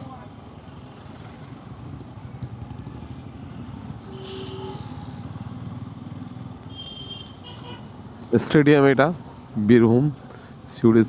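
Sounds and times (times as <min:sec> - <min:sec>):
road and wind noise: 0:00.0 - 0:11.0
motorcycle engine running: 0:00.1 - 0:06.8.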